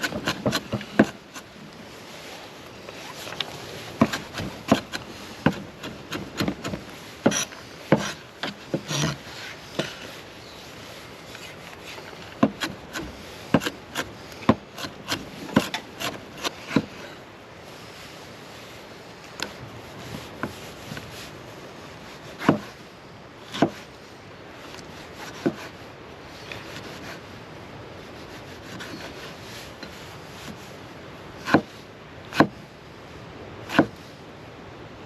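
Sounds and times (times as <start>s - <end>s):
background hiss: 0.0s - 35.0s
scraping: 2.9s - 10.2s.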